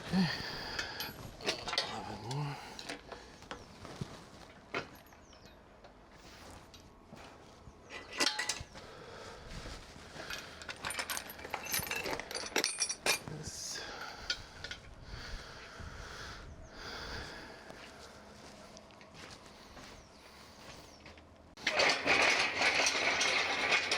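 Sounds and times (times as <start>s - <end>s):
metal tools clinking: 0.0s - 6.4s, 7.8s - 8.8s, 10.1s - 14.9s, 21.0s - 23.9s
scraping and rustling: 0.8s - 8.9s, 18.5s - 23.9s.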